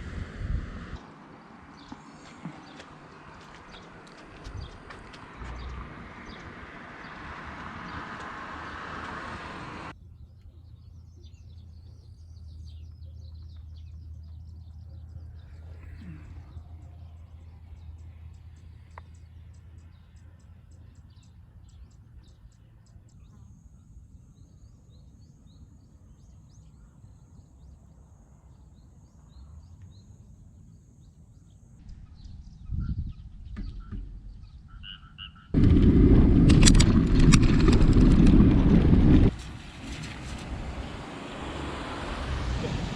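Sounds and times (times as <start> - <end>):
rush of noise: 0.0 - 1.1, 35.6 - 42.9
birds chirping: 0.0 - 42.9.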